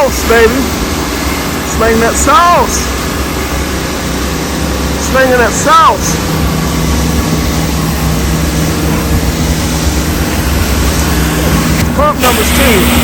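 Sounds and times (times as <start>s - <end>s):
pressure washer pump running: 0.0s - 13.0s
water spray hissing: 6.0s - 13.0s.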